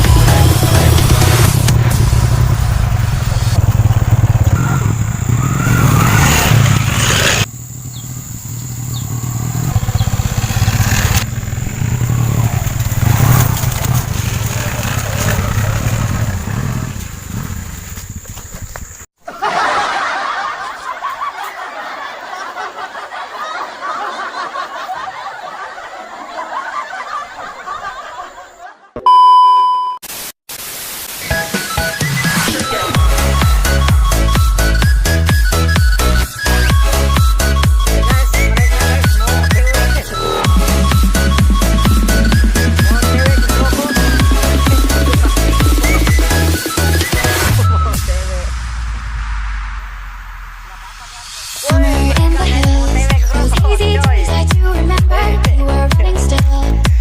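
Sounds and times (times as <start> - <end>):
electronic dance music: 0.0 - 2.5, 31.2 - 57.0
motorcycle engine running: 0.0 - 19.1, 36.7 - 48.4
people laughing: 19.2 - 29.0, 38.1 - 46.6, 50.6 - 54.5
electronic beep: 29.0 - 30.0
burst of hiss-like noise: 30.1 - 31.8.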